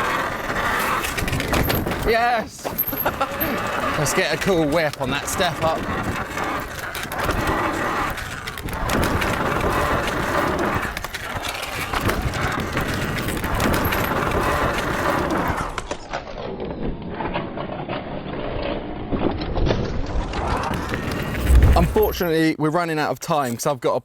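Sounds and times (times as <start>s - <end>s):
tyres on dirt: 0.0s - 15.8s, 20.6s - 22.4s
wind on microphone: 21.0s - 22.2s.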